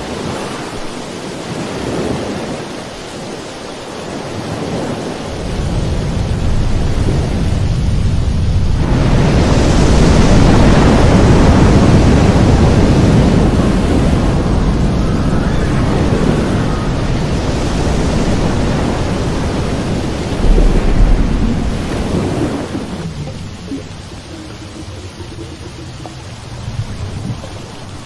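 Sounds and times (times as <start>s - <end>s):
water churning and splashing: 0.0s - 28.0s
low thumps: 20.0s - 27.0s.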